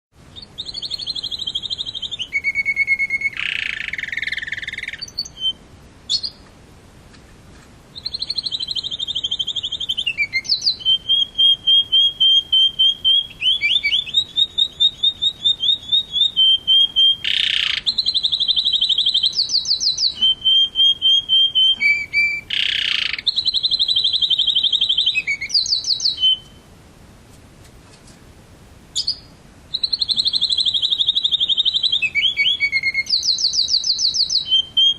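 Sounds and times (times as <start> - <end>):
canary singing rapid trills: 0.3 - 6.4, 7.9 - 26.6, 28.9 - 34.9
short harsh bird calls: 0.4 - 6.4, 8.0 - 26.6.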